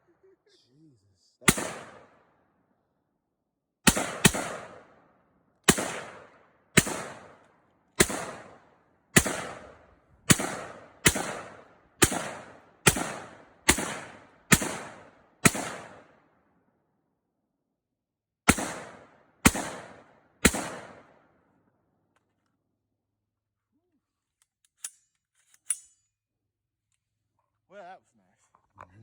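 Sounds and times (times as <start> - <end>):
rifle shots with echo: 1.4 - 2.4, 3.8 - 16.5, 18.5 - 21.6.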